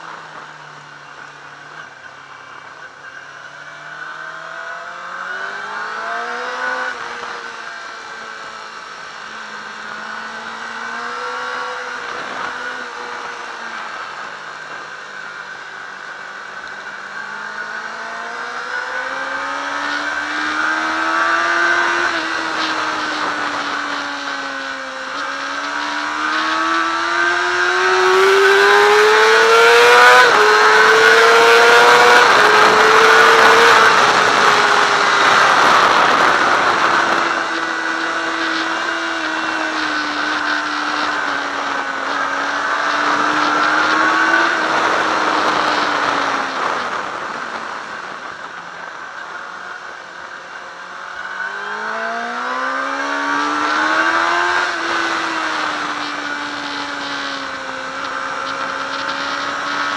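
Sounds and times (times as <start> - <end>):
motorcycle engine revving: 0.0 - 59.9
wind rush on microphone: 19.6 - 50.0.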